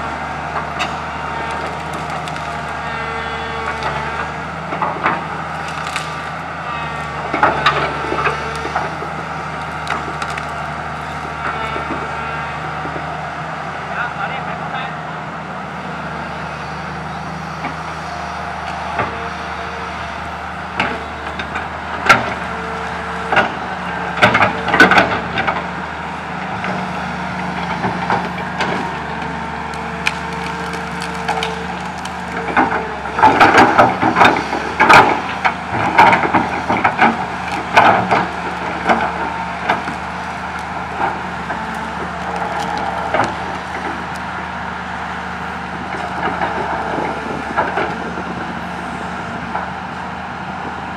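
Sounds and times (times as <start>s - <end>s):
excavator diesel engine running: 0.0s - 50.9s
wood cracking and snapping: 0.5s - 12.1s, 26.6s - 44.4s.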